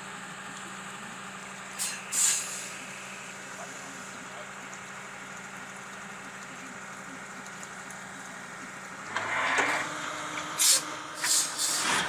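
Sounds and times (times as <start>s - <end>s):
vehicle engine running: 0.0s - 12.0s
short sharp hiss: 1.8s - 2.7s, 10.6s - 12.0s.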